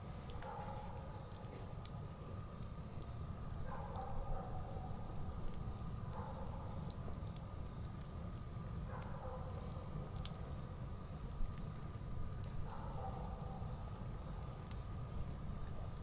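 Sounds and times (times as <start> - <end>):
campfire crackling and popping: 1.0 - 4.2, 4.9 - 16.0.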